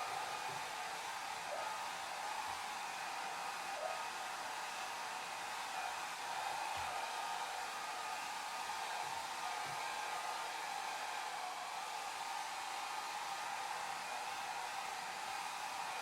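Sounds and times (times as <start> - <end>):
hair dryer running: 0.0 - 16.0.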